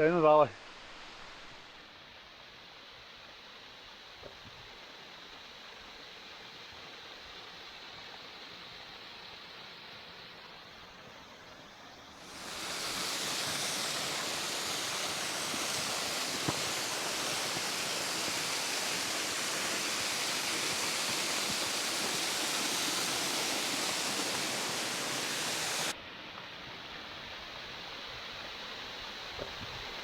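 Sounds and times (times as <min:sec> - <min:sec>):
waterfall rushing: 0:12.1 - 0:26.0.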